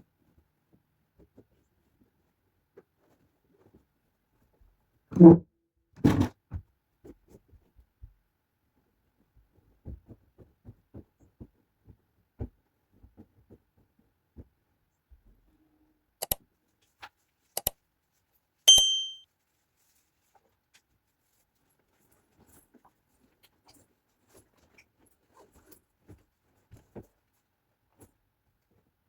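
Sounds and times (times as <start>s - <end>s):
sharp clicks: 17.6s - 17.8s
metallic clink: 18.7s - 19.2s.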